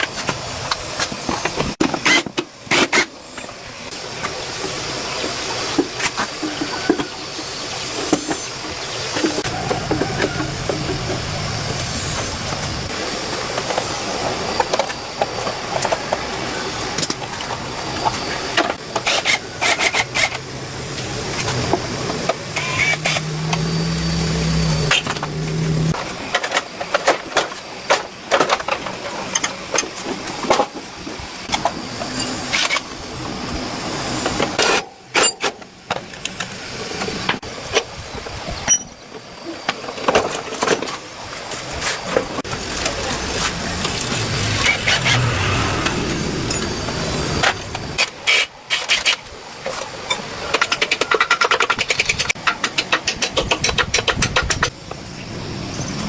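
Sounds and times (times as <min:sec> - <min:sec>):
steady background noise: 0:00.0 - 0:56.0
low hum: 0:03.3 - 0:26.6, 0:42.1 - 0:48.2
sharp clicks and knocks: 0:49.8 - 0:54.8.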